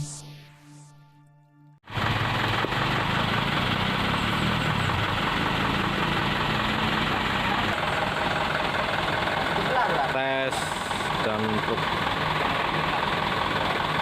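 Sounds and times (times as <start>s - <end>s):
music: 0.0s - 1.9s
truck diesel engine running: 1.9s - 14.0s.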